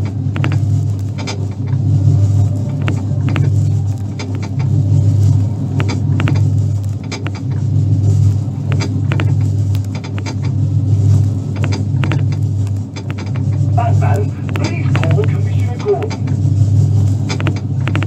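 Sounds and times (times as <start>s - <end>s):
mechanism clicks and knocks: 0.0s - 1.8s, 5.8s - 7.6s, 8.7s - 10.6s, 11.5s - 13.7s, 17.2s - 18.0s
low motor hum: 0.0s - 18.0s.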